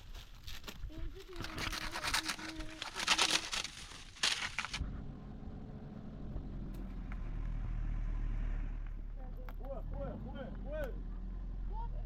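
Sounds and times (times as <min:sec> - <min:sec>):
crackling crunching noise: 0:00.0 - 0:04.8
vehicle engine low rumble: 0:04.2 - 0:12.0.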